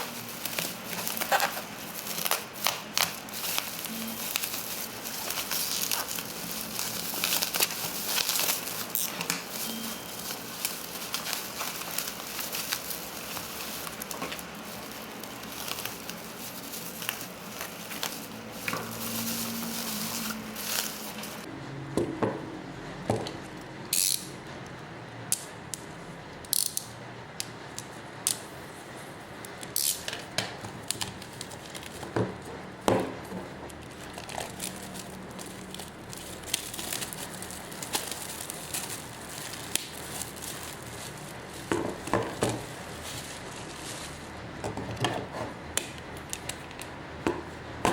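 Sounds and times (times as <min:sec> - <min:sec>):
plastic and paper crinkling: 0:00.0 - 0:21.5, 0:30.2 - 0:32.6, 0:33.2 - 0:44.4.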